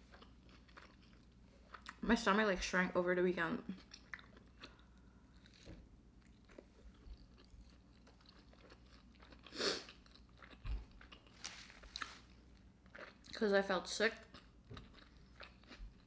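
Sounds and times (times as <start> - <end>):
close chewing: 3.8 - 12.2.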